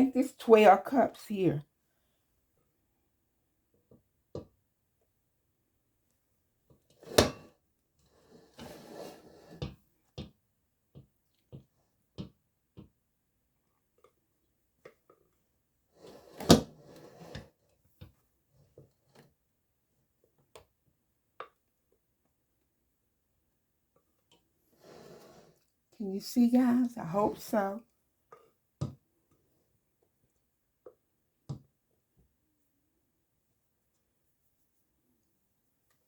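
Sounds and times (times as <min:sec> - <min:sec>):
brief scraping on counter: 0:08.3 - 0:09.6, 0:24.8 - 0:25.6.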